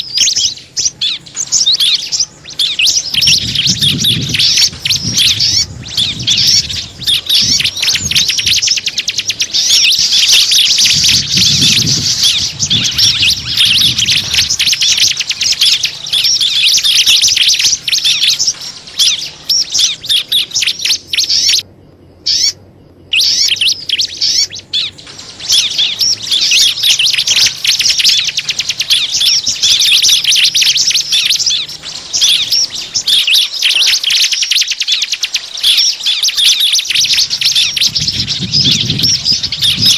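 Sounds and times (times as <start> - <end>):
songbirds chirping in rapid trills: 0.0 - 39.9.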